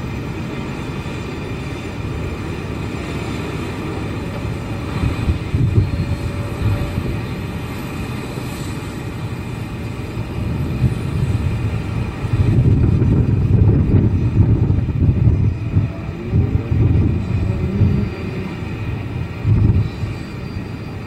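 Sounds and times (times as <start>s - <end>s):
jet engines low rumble: 0.0s - 21.0s.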